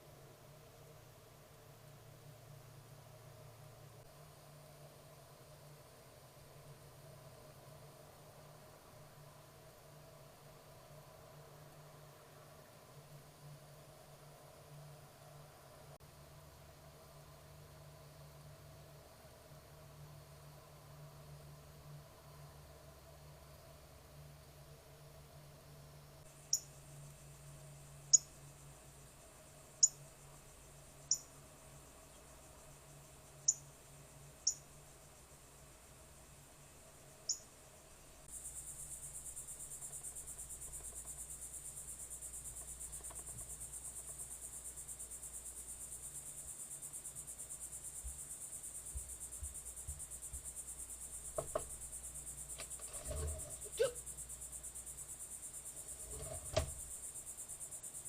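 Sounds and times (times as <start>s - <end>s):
crickets chirping: 0.0s - 58.0s
knocks: 51.4s - 51.7s.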